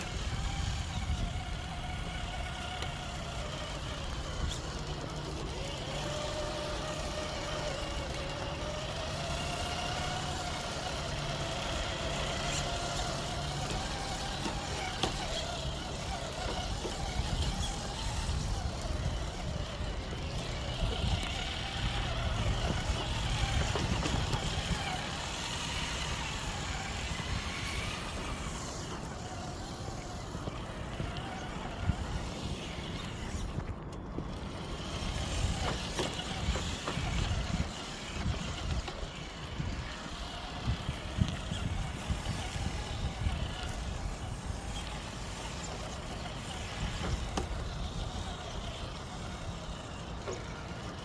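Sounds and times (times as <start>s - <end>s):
highway traffic rumble: 0.0s - 51.0s.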